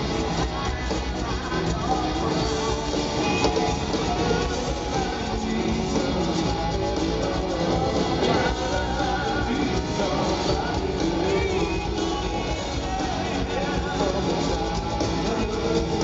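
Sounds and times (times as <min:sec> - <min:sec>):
person singing: 0:00.0 - 0:16.0
rock band playing live: 0:00.0 - 0:16.0.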